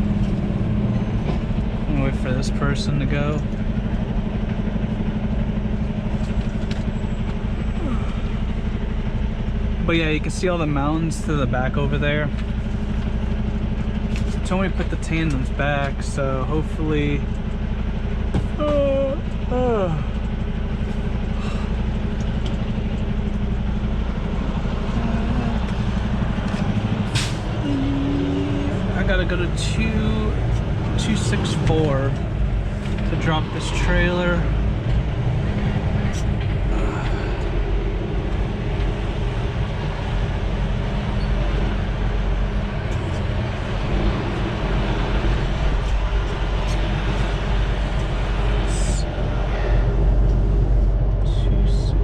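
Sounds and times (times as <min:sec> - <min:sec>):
diesel truck engine running: 0:00.0 - 0:52.0.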